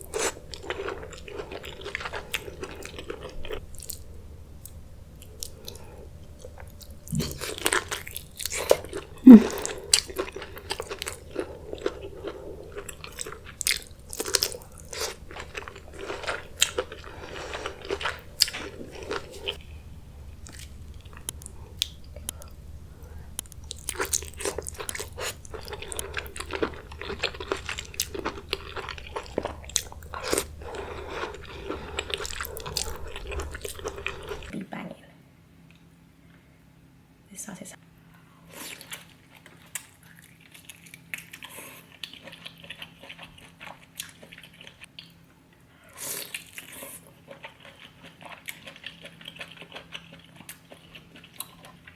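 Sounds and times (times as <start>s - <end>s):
crunching and chewing seafood: 0.0s - 34.5s, 38.4s - 51.9s
sharp wet clicks: 23.3s - 26.4s.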